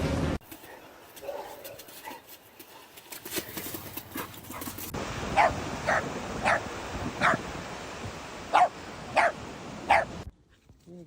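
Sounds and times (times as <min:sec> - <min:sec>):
dog barking: 0:05.4 - 0:06.6, 0:07.2 - 0:07.4, 0:08.5 - 0:10.2.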